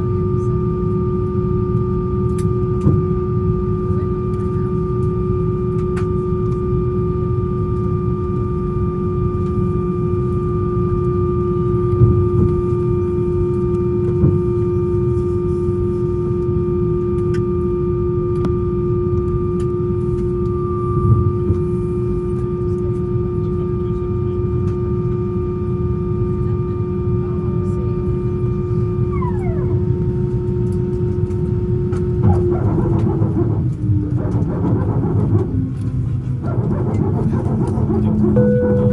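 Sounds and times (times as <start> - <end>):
aircraft cabin hum and rumble: 0.0 - 38.9
faint clicks and bumps: 29.2 - 38.9
steady tone: 32.2 - 38.9.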